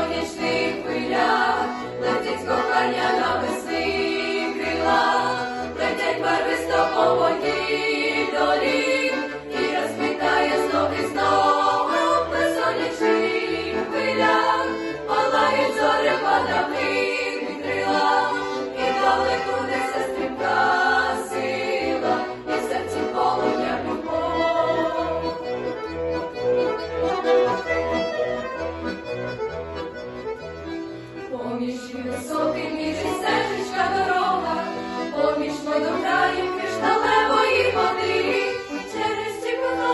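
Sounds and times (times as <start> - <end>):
vocal ensemble singing: 0.0 - 25.5, 31.3 - 39.9
instrumental accompaniment: 0.0 - 39.9.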